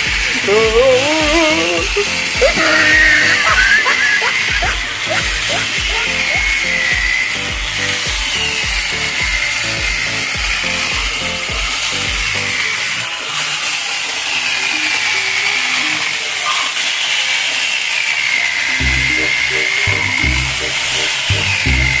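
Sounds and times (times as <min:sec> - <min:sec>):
background music with steady beat: 0:00.0 - 0:13.7, 0:18.8 - 0:22.0
electric chainsaw cutting log: 0:00.0 - 0:22.0.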